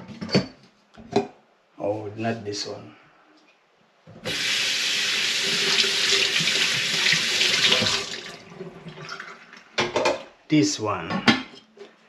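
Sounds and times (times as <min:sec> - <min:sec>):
tap water running into sink: 0:04.3 - 0:09.4.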